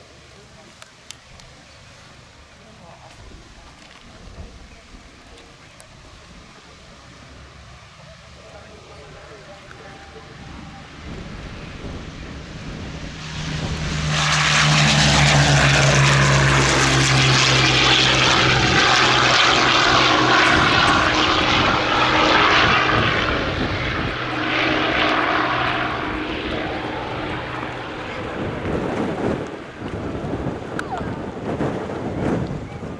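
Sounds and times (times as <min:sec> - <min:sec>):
propeller aircraft flying past: 0:06.6 - 0:32.9.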